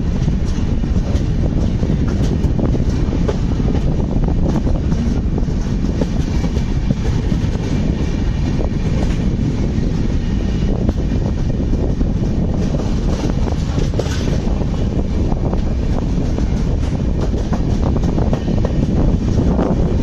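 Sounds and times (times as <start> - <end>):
wheels clicking over rail joints: 0.0 - 10.0, 10.8 - 20.0
train wheels rumbling on track: 0.0 - 20.0.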